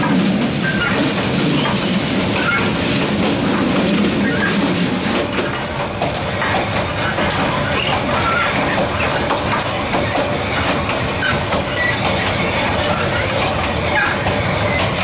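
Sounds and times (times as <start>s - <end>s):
train wheels rattling on rails: 0.0s - 15.0s
high metallic squeaks: 11.2s - 15.0s.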